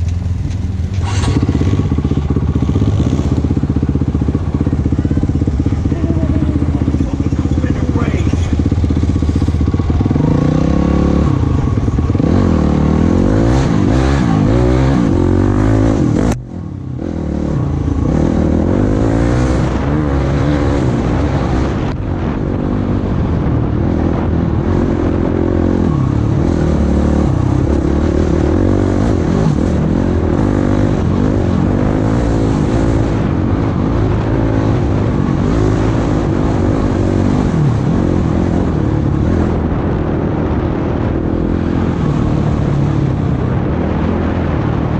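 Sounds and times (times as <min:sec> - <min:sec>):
off-road vehicle engine revving: 0:00.0 - 0:44.9.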